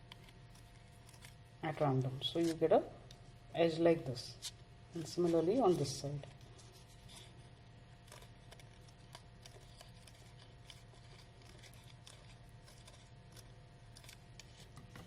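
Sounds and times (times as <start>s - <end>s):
scissors snipping paper: 8.0s - 15.0s.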